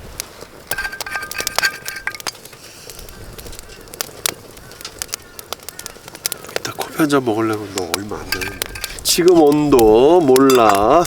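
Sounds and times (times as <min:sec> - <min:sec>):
metal utensils tapping a pot: 0:00.7 - 0:02.5, 0:07.9 - 0:11.0.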